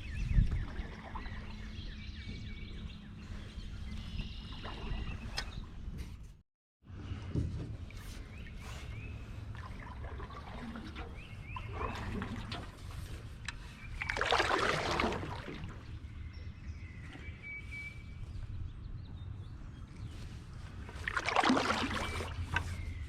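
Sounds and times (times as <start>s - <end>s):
birds chirping: 0.0s - 6.0s, 8.0s - 21.0s, 21.6s - 23.0s
paddle dripping and splashing water: 9.3s - 16.0s, 20.8s - 22.8s.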